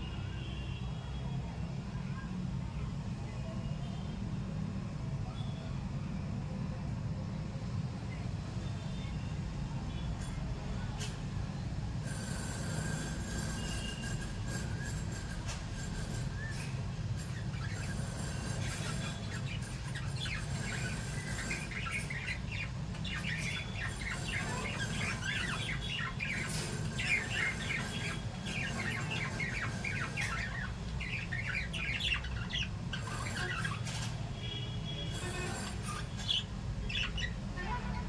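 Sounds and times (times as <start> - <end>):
parrots chirping and squawking: 12.0 - 34.3, 35.1 - 38.0.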